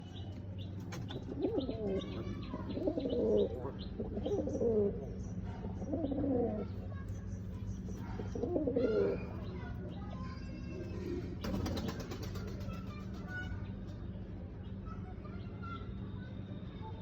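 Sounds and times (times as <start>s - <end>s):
steady low hum: 0.0s - 17.0s
pigeon cooing: 1.2s - 6.8s, 8.1s - 9.4s.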